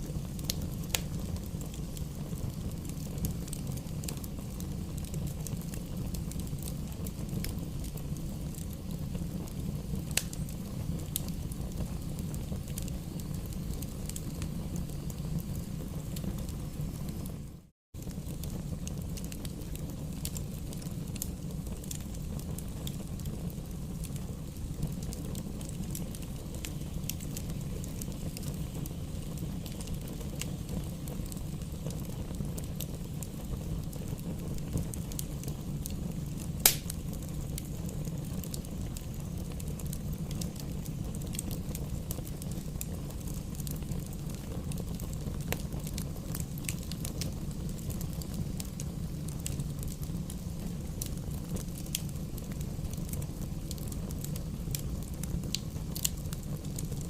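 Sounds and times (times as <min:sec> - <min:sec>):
fire crackling: 0:00.0 - 0:57.0
low rumble of flames: 0:00.0 - 0:57.0
loud pop from fire: 0:36.4 - 0:37.4.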